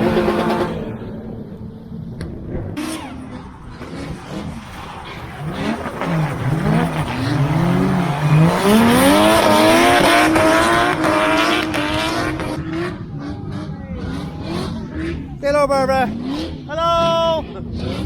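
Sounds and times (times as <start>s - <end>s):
car engine revving hard: 0.0s - 1.1s, 2.7s - 18.0s.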